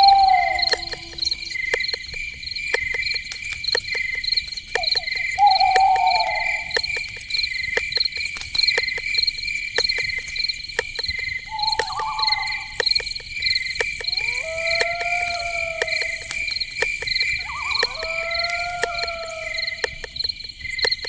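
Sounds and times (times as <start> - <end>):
wavering animal call: 0.0 - 1.8, 4.8 - 6.8, 11.5 - 12.8, 14.0 - 16.6, 17.2 - 20.2
crickets trilling: 0.0 - 21.0
sharp insect clicks: 0.0 - 21.0.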